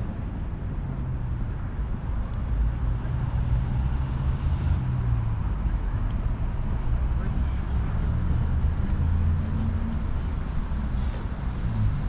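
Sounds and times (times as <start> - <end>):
road traffic rumble: 0.0 - 12.0
vehicle engine humming: 0.0 - 12.0.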